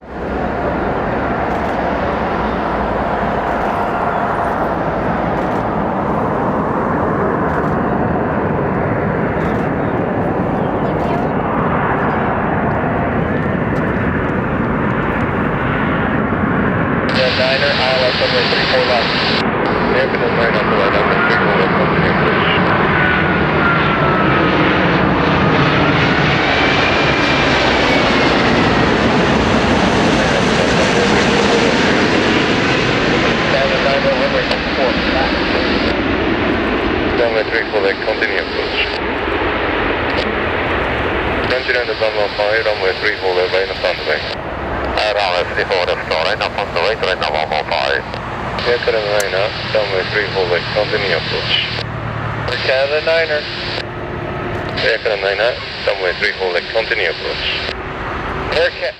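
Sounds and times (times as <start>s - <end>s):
jet engines rushing with whine: 0.0s - 58.9s.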